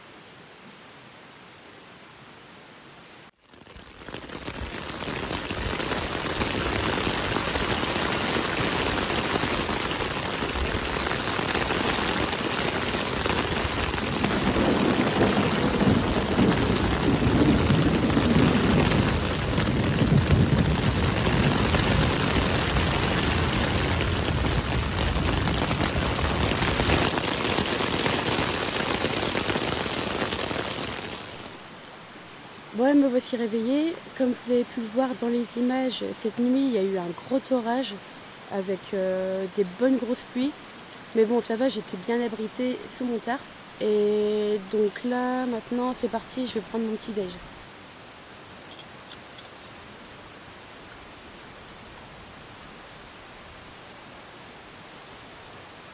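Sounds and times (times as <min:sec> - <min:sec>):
heavy rain pouring: 0:03.4 - 0:49.9
thunder rumbling: 0:04.1 - 0:31.6.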